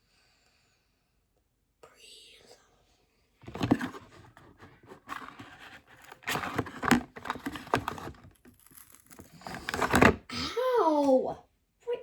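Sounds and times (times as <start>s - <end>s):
plastic packaging crinkling and tearing: 3.5s - 10.2s.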